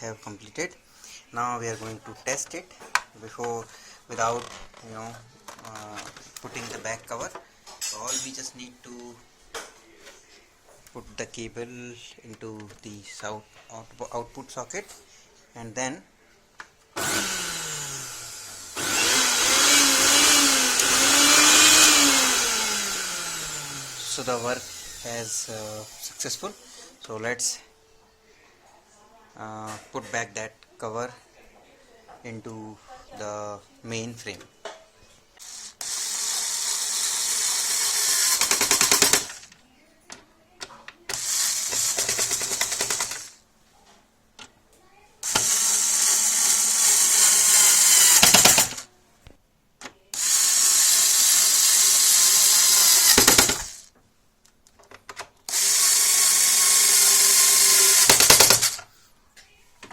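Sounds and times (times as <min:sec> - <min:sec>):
mixer grinder motor running: 0:17.0 - 0:26.7, 0:35.4 - 0:39.4, 0:41.2 - 0:43.3, 0:45.2 - 0:48.8, 0:50.2 - 0:53.9, 0:55.5 - 0:58.8.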